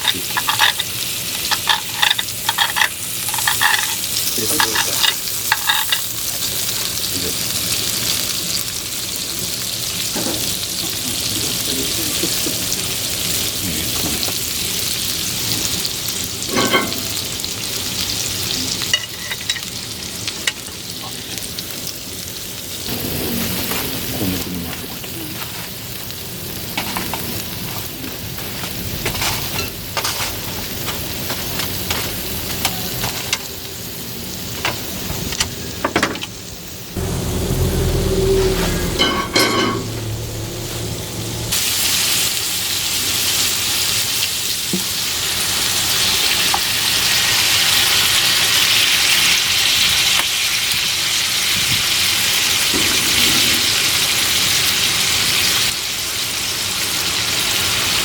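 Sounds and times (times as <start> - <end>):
steak sizzling in a pan: 0.0 - 37.0, 41.2 - 58.0
low rumble: 37.0 - 41.5.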